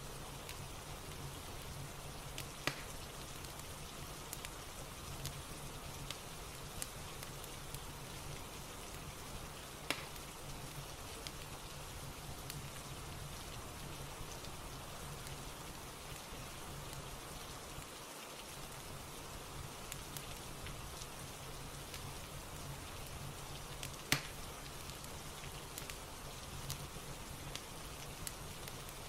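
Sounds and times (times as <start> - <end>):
fireplace fire crackling: 0.0 - 29.0
steady rain: 0.0 - 29.0.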